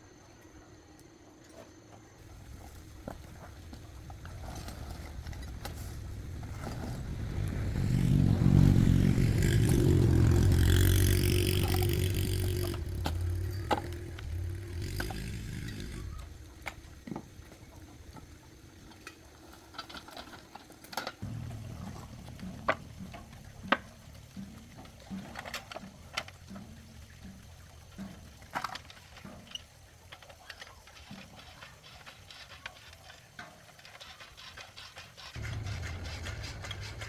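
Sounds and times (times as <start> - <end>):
vehicle engine passing: 2.3 - 16.8, 35.4 - 37.0.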